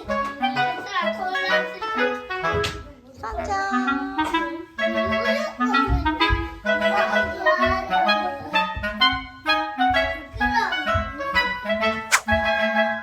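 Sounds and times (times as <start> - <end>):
bouncy clarinet tune: 3.5 - 13.0.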